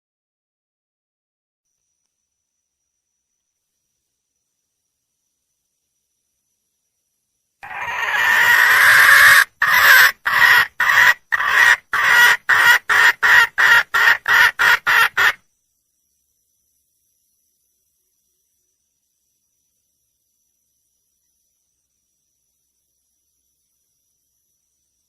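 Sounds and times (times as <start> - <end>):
hen calling: 7.6 - 15.4.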